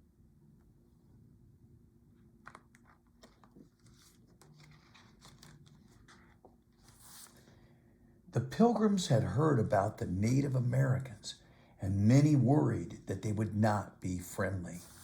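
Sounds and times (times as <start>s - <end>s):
faint low room hum: 0.0s - 15.0s
book pages turning: 2.4s - 7.6s.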